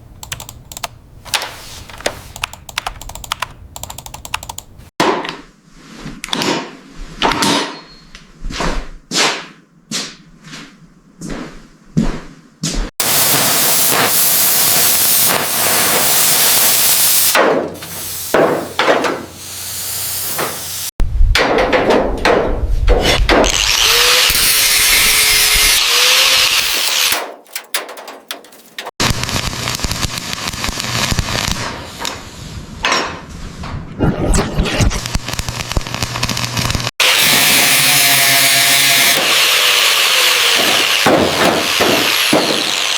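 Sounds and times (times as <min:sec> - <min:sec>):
loud power tool: 0:13.0 - 0:20.9, 0:23.4 - 0:27.2, 0:29.0 - 0:31.6, 0:35.0 - 0:42.9.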